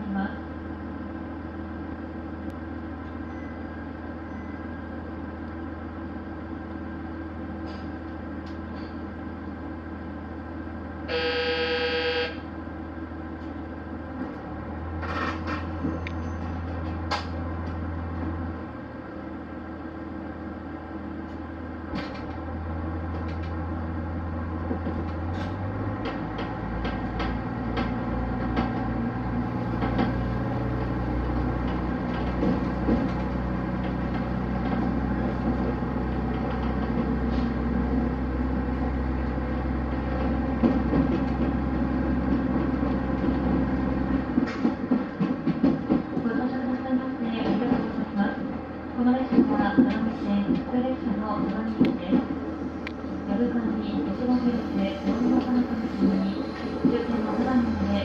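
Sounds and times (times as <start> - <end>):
train running drone: 0.0 - 58.0
train horn toot: 11.1 - 12.5.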